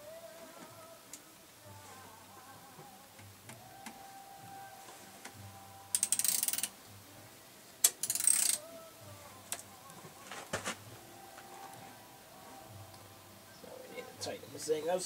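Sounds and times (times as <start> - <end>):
ratchet wrench clicking: 5.9 - 6.7, 7.8 - 8.6.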